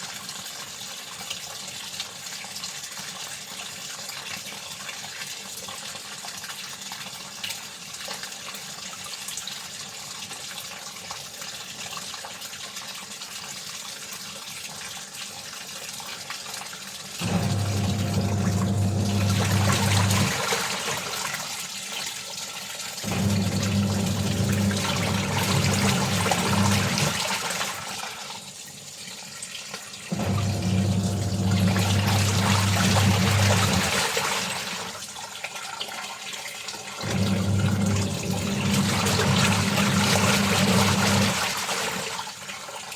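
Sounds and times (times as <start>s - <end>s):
water gushing: 0.0s - 42.9s
electric motor hum: 17.2s - 20.4s, 23.0s - 27.2s, 30.1s - 34.0s.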